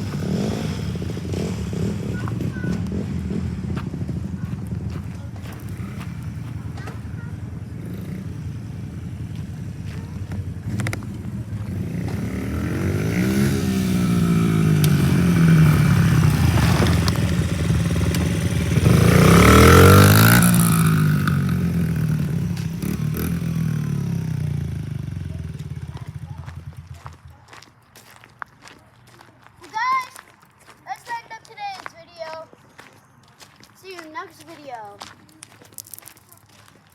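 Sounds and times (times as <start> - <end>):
dirt bike engine revving: 0.0 - 27.1.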